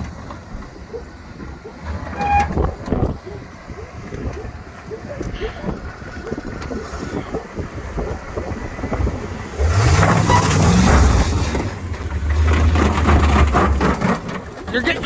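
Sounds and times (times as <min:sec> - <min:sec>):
pickup truck engine revving: 0:00.9 - 0:15.0.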